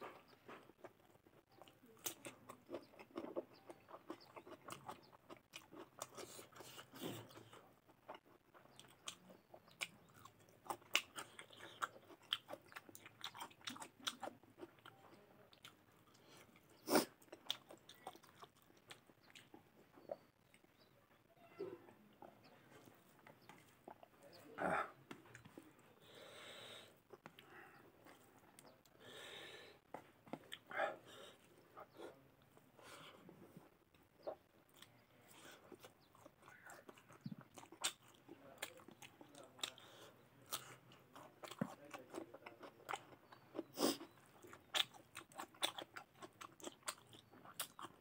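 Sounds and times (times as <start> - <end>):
person chewing: 0.0 - 20.9, 22.1 - 48.0
crunchy cucumber bites: 40.4 - 48.0.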